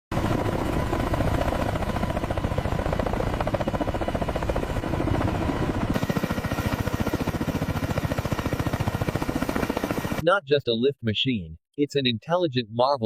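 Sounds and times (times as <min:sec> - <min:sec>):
helicopter rotor beating: 0:00.1 - 0:10.2.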